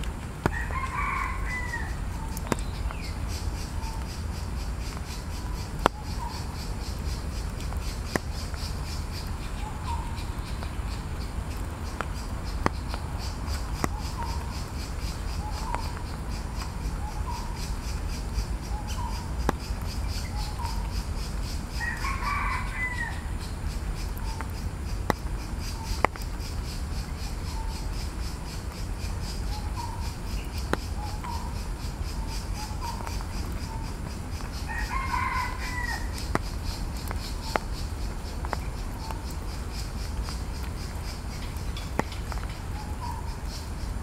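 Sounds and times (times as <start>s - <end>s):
birds calling: 0.4s - 44.0s.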